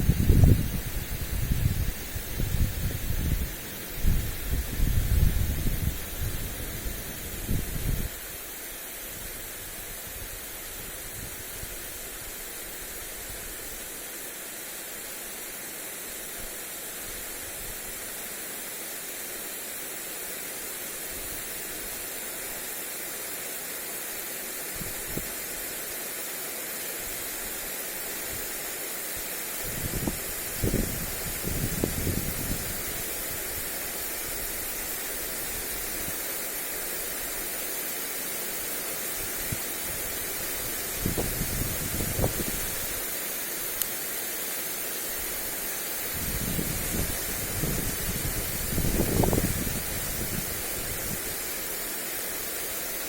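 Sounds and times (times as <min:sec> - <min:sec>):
wind buffeting microphone: 0:00.0 - 0:08.2, 0:29.6 - 0:33.7, 0:39.4 - 0:42.8, 0:46.1 - 0:51.3
lawn sprinkler spraying water: 0:00.0 - 0:53.0.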